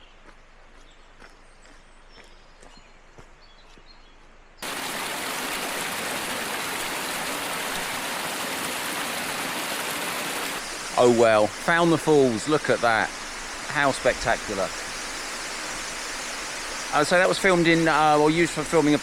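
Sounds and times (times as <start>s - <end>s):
waterfall rushing: 4.6s - 19.0s.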